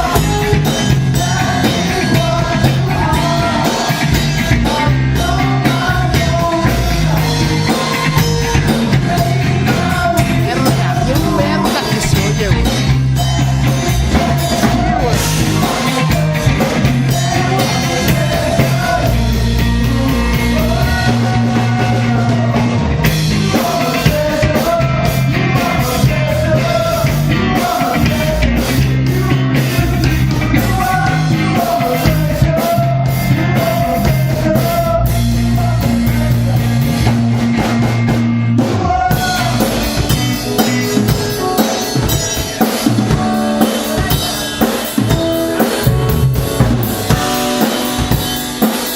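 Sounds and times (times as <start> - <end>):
person singing: 0.0 - 37.2, 38.6 - 48.9
drums: 0.0 - 48.9
rock band playing live: 0.0 - 48.9.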